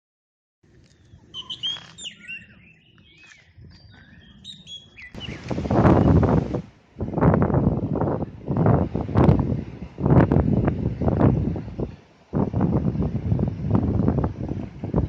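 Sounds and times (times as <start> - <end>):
birds chirping and whistling: 1.0 - 6.2
wind buffeting microphone: 2.4 - 15.0.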